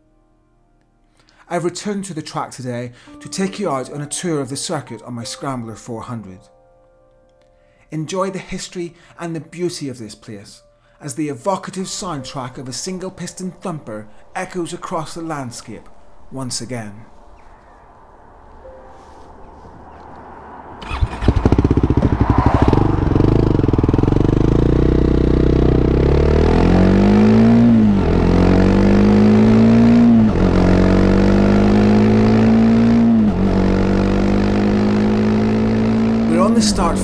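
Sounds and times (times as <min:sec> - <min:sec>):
motorcycle engine revving: 0:20.6 - 0:37.0.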